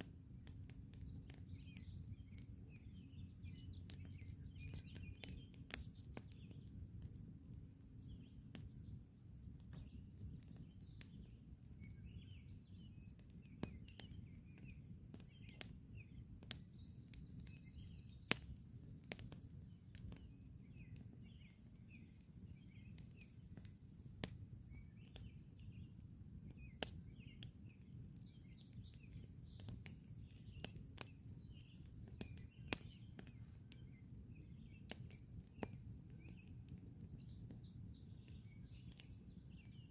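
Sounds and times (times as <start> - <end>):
fire pops: 0.0 - 7.3, 8.2 - 25.9, 26.5 - 39.8
campfire crackling: 0.0 - 39.9
birds chirping and singing: 0.9 - 6.8, 8.0 - 39.9.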